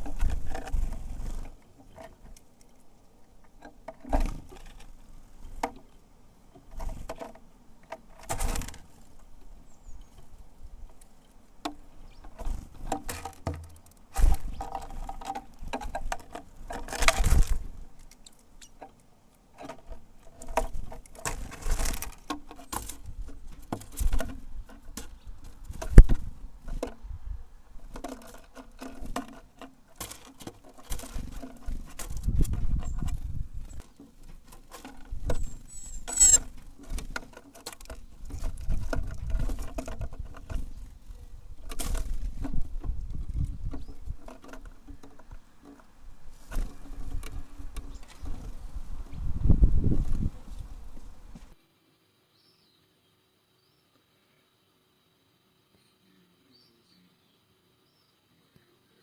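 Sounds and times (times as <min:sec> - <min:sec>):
wind noise on microphone: 0:00.0 - 0:01.5, 0:16.9 - 0:17.9, 0:23.0 - 0:27.5, 0:31.1 - 0:33.8, 0:38.0 - 0:44.3, 0:46.1 - 0:51.6
birds pecking at seeds: 0:00.0 - 0:49.3.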